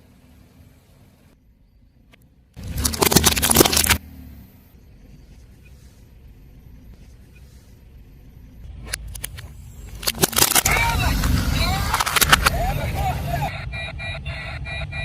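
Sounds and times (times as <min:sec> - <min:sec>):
car tyres and engine rumble: 0:00.0 - 0:15.0
tyre crushing crunchy objects: 0:02.6 - 0:04.0.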